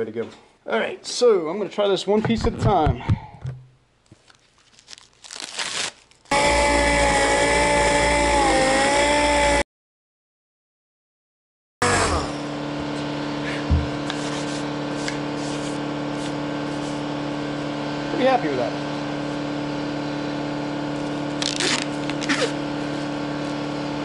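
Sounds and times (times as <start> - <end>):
power tool motor running: 6.3 - 9.6, 11.8 - 12.8, 20.8 - 24.0
steady mechanical hum: 11.9 - 24.0.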